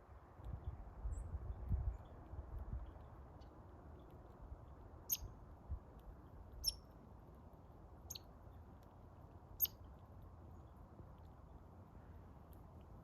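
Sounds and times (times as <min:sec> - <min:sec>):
squirrel squeaking: 0:05.1 - 0:05.3, 0:06.5 - 0:06.8, 0:09.6 - 0:09.8.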